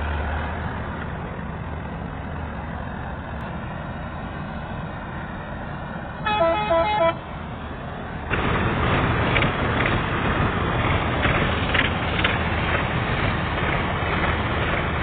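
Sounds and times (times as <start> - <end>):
heavy engine running: 0.0 - 15.0
vehicle horn tune: 6.2 - 7.3
harvesting machinery rushing: 8.2 - 15.0.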